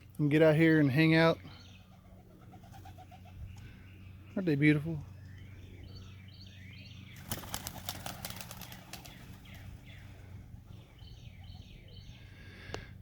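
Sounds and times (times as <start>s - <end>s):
pigeon wings flapping: 7.2s - 9.7s.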